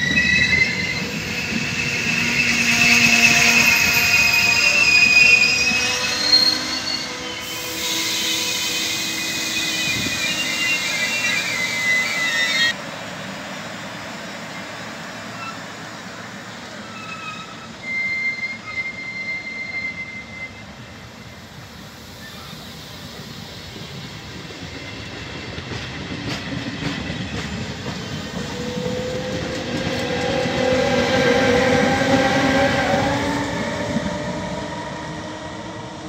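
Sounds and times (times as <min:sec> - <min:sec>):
high steady squeal: 0:00.0 - 0:12.8, 0:16.7 - 0:24.8
electric locomotive whine: 0:00.0 - 0:36.0
train wheel rumble: 0:21.4 - 0:36.0.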